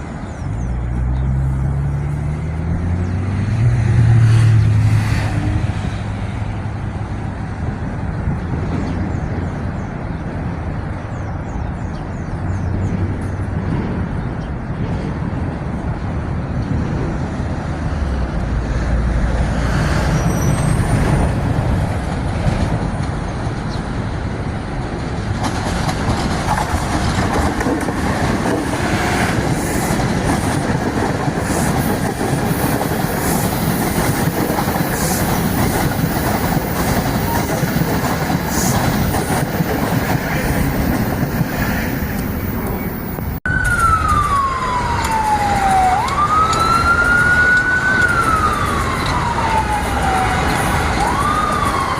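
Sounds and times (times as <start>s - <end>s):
train running on tracks: 0.0s - 51.9s
wheels clattering on rail joints: 24.8s - 51.9s.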